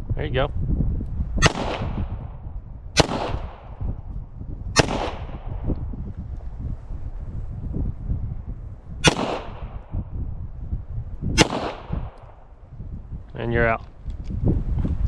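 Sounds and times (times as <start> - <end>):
pistol shots with echo: 1.4 - 2.3, 3.0 - 3.8, 4.8 - 5.7, 9.0 - 9.9, 11.4 - 12.5.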